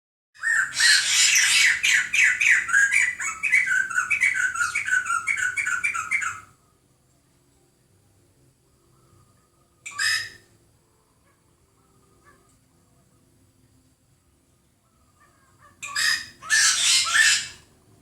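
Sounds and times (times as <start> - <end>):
bird squawking calls: 0.4 - 6.5, 9.9 - 10.5, 15.2 - 17.7.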